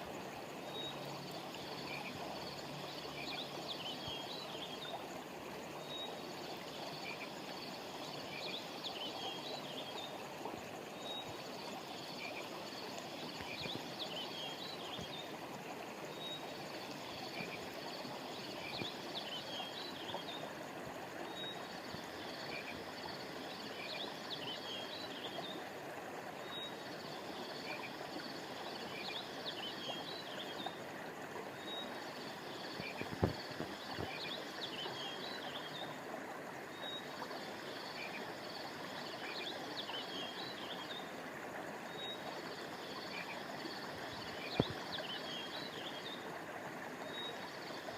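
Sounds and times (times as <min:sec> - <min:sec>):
stream water running: 0:00.0 - 0:47.9.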